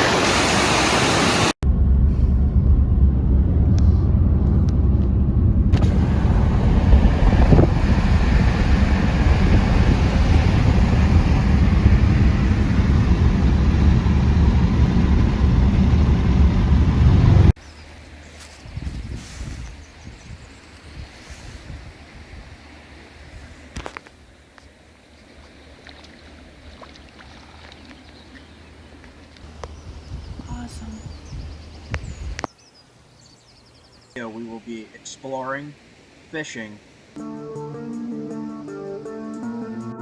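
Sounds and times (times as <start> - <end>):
rushing water: 0.0 - 1.6, 5.8 - 17.4, 20.6 - 29.7
steady low rumble: 1.6 - 20.1
faint hiss: 32.1 - 37.2.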